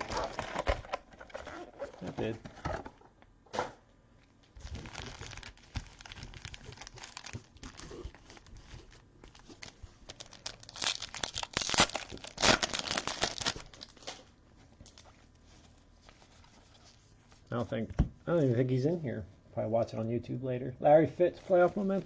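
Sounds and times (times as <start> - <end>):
packaging crinkling and tearing: 0.0 - 3.1, 4.4 - 15.2.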